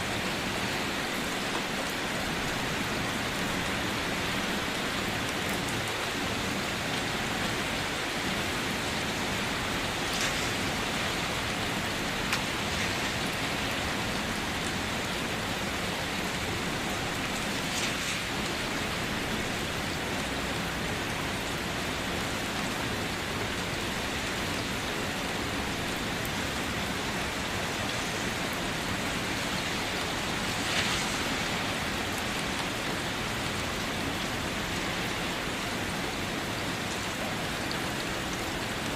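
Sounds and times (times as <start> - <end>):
rain on a car: 0.0 - 38.9
raindrops tapping: 9.2 - 20.4.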